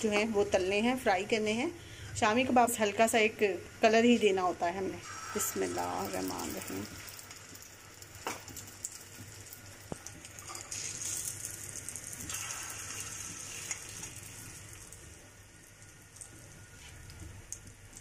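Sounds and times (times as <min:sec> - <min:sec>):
kebabs sizzling in oil: 0:02.5 - 0:18.0
oil crackles: 0:05.4 - 0:18.0.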